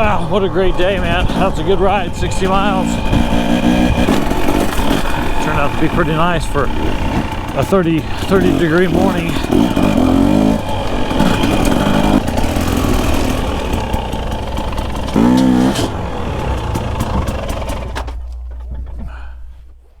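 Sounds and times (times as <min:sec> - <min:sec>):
dirt bike engines idling and revving: 0:00.0 - 0:20.0.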